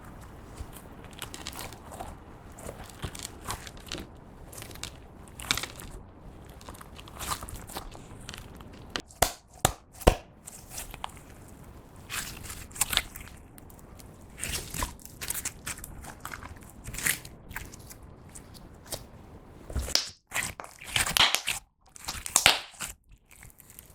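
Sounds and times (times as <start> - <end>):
slime wet crackling: 0.0 - 19.1, 19.7 - 23.9
slime clicking and popping: 19.8 - 22.9.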